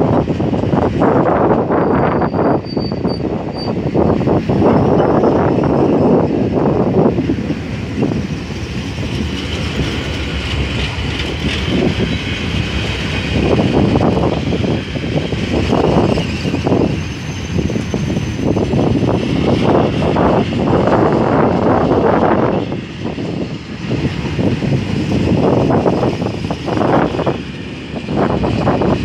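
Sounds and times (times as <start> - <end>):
freight train rumble: 0.0 - 29.0.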